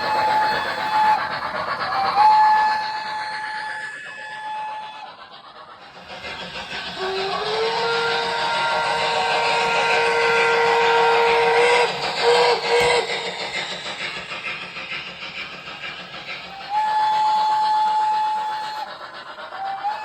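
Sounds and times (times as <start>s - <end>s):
model train whistle: 0.0s - 1.3s, 1.9s - 5.1s, 7.0s - 13.1s, 16.6s - 18.9s, 19.6s - 20.0s
steam chuffing hiss: 0.0s - 20.0s.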